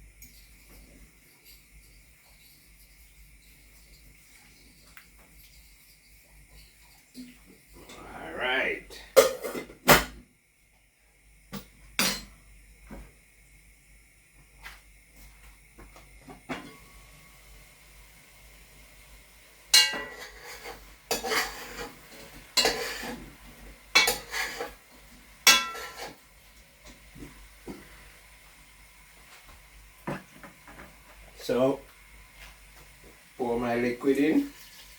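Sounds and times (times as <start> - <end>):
pots and pans clattering: 9.1 - 10.2, 19.7 - 27.9.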